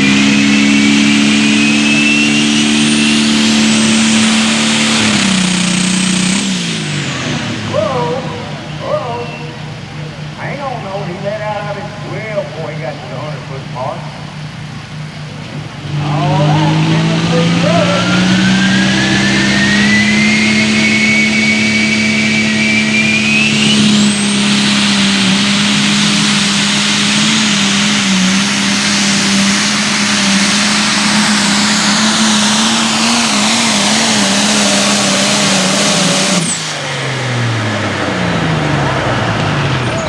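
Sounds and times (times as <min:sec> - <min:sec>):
turbo whistle: 0:00.0 - 0:10.4, 0:15.9 - 0:37.4
diesel engine at full throttle: 0:00.0 - 0:40.0.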